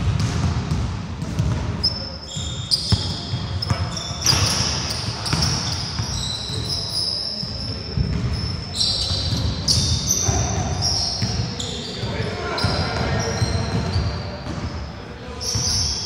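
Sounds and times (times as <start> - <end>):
basketball bouncing: 0.0 - 1.8, 2.8 - 6.6, 8.0 - 8.4
sneakers squeaking on gym floor: 0.0 - 16.0.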